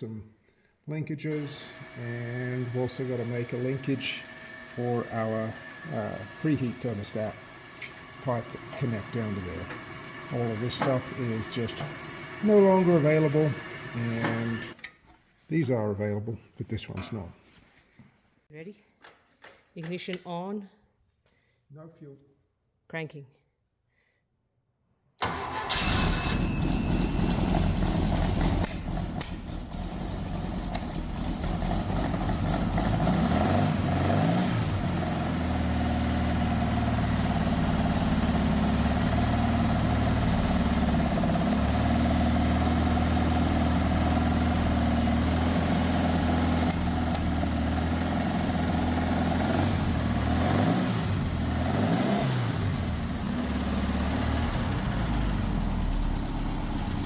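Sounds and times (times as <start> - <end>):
car engine running unevenly: 1.8 - 14.7, 26.2 - 51.5, 52.3 - 57.0.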